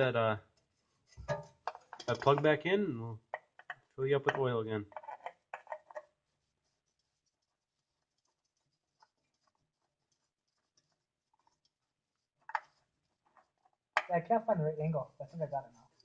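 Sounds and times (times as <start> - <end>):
faint scratching: 3.6 - 13.8.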